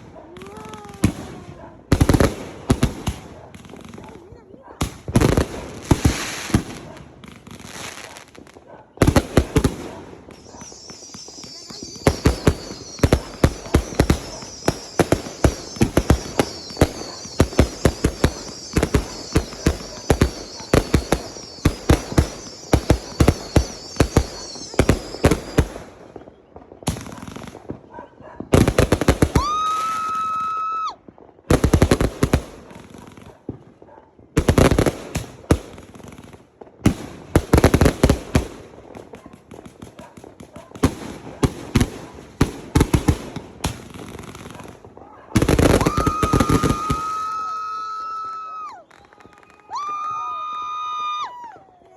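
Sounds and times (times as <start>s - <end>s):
fireworks bangs: 0.0s - 51.9s
whistling firework: 5.9s - 34.0s, 39.2s - 51.9s.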